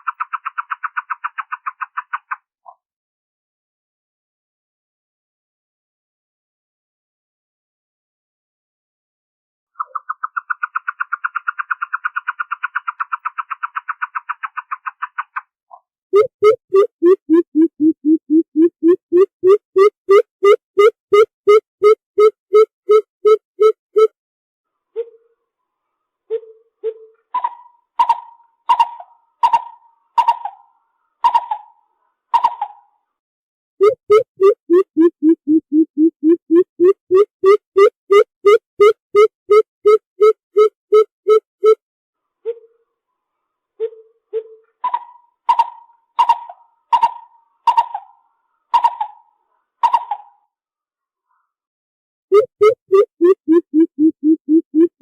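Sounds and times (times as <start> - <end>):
bird calling hollow notes: 16.2 - 24.1, 33.8 - 41.8, 52.3 - 55.0.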